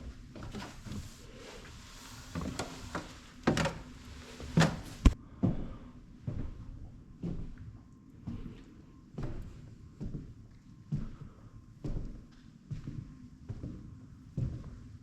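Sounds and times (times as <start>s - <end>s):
footsteps on wooden floorboards: 2.0s - 7.7s, 9.2s - 10.3s, 10.9s - 14.8s.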